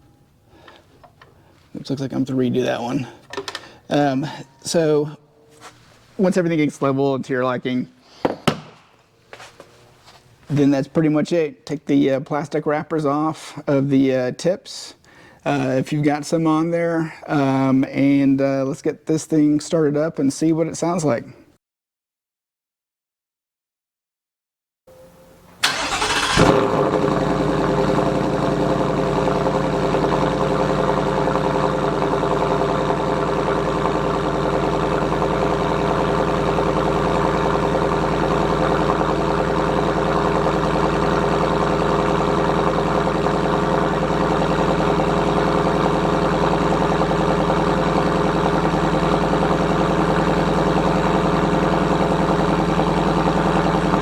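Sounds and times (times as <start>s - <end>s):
truck engine starting and idling: 0.2s - 5.2s, 25.1s - 54.0s.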